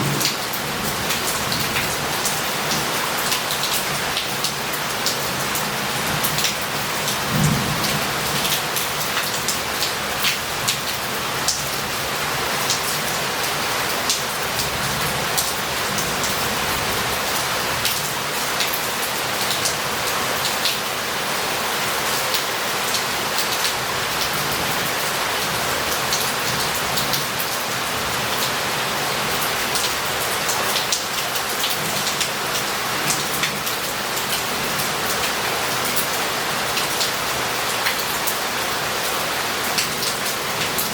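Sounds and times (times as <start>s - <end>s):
heavy rain running off roof: 0.0s - 40.9s
low rumbles of thunder: 7.3s - 8.1s.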